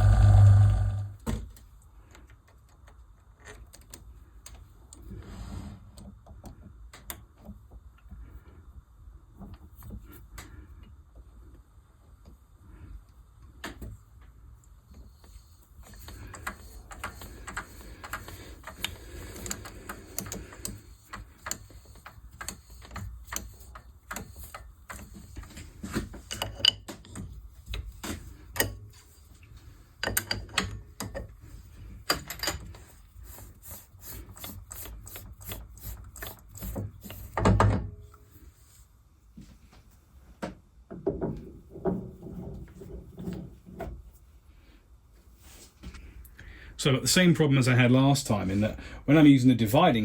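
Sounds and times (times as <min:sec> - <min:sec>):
faint low hum: 0:00.0 - 0:01.3.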